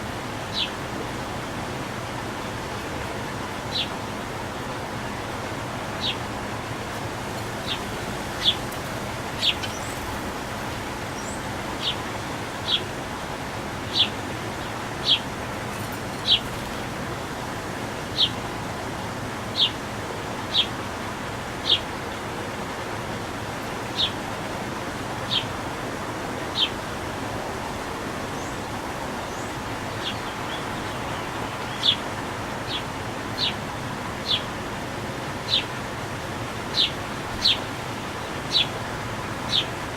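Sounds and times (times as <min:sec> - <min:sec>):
small bird chirping: 0:07.6 - 0:10.2, 0:29.2 - 0:32.0, 0:34.2 - 0:34.5, 0:35.5 - 0:35.7, 0:36.7 - 0:37.7, 0:38.5 - 0:38.7.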